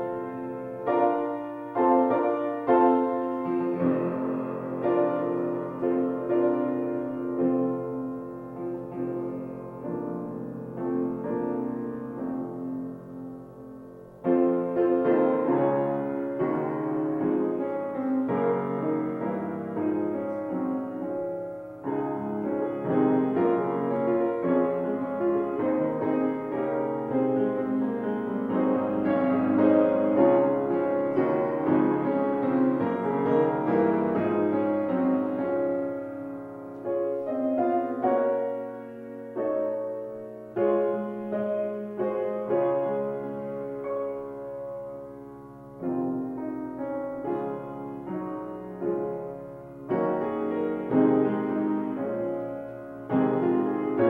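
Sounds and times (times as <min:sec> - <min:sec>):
piano playing chords: 0:00.0 - 0:54.0.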